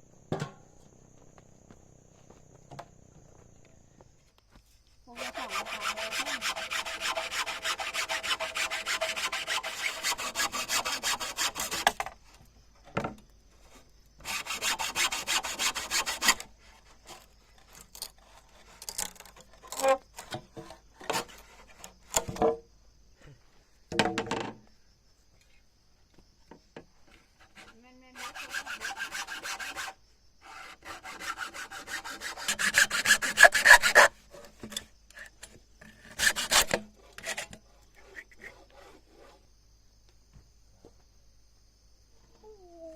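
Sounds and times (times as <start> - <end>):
saw rasping through wood: 5.1 - 12.0, 14.2 - 20.0, 21.0 - 21.9, 27.5 - 34.5, 36.0 - 39.4.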